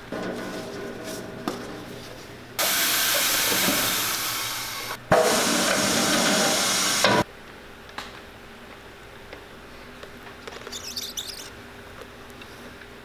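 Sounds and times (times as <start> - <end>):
pressurised air hissing: 2.6 - 7.2.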